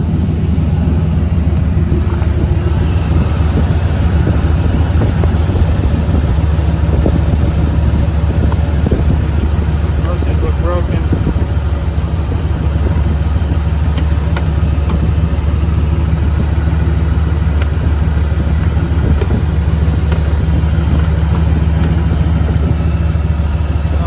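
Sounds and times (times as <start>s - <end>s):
truck engine idling: 0.0s - 24.0s.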